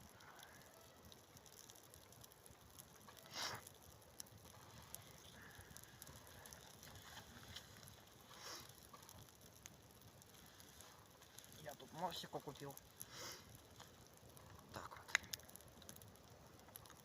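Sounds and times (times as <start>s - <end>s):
campfire crackling: 0.0s - 17.0s
soft rustles: 6.2s - 9.2s.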